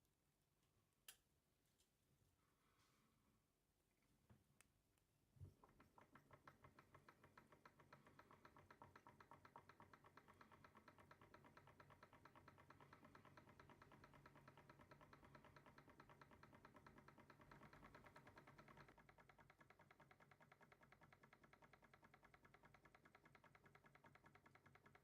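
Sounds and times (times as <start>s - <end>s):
engine knock: 5.6s - 25.0s
stirling engine ticking: 5.9s - 24.9s.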